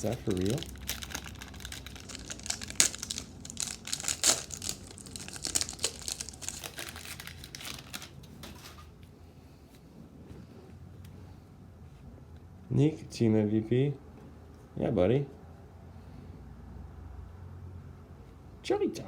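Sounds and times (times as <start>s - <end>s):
wrapper crinkling and tearing: 0.0s - 8.8s.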